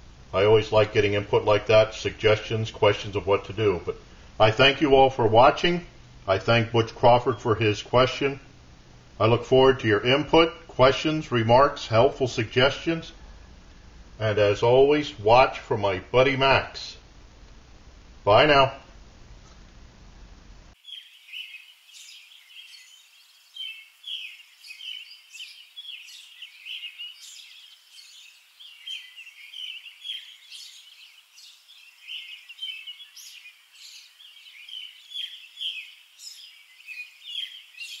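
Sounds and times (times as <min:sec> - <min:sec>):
birds chirping: 0:20.8 - 0:38.0.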